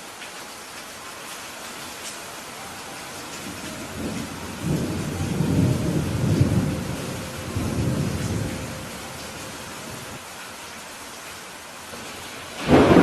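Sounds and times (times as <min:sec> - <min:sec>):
steady rain hiss: 0:00.0 - 0:13.0
rolling thunder rumble: 0:03.4 - 0:10.2, 0:12.5 - 0:13.0.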